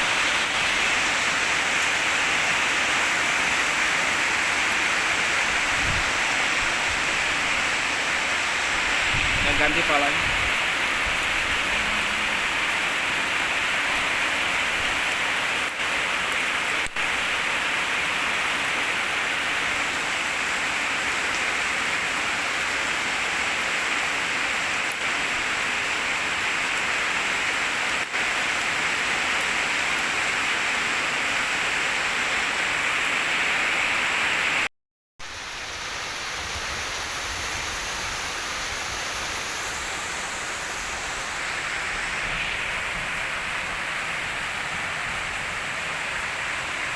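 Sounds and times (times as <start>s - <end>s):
high-pressure water spray hissing: 0.0s - 14.8s, 35.2s - 46.9s.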